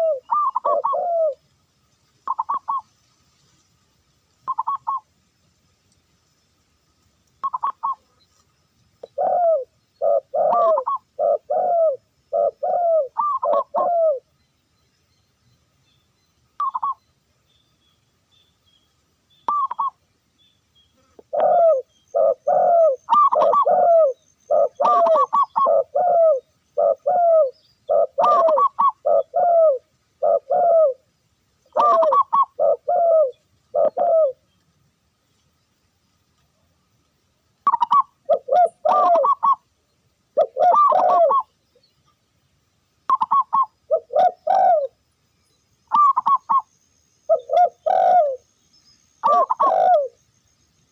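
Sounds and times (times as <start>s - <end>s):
dove cooing: 0.0s - 1.4s, 2.2s - 2.8s, 4.5s - 5.0s, 7.4s - 8.0s, 9.0s - 14.3s, 16.6s - 17.0s, 19.5s - 20.0s, 21.0s - 31.0s, 31.7s - 34.4s, 37.6s - 39.6s, 40.4s - 41.5s, 43.1s - 45.0s, 45.9s - 46.7s, 47.3s - 48.4s, 49.2s - 50.2s.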